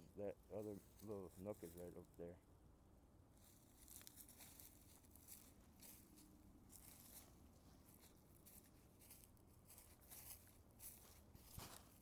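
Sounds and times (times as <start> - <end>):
faint rustling and scuffing: 3.4 - 12.0.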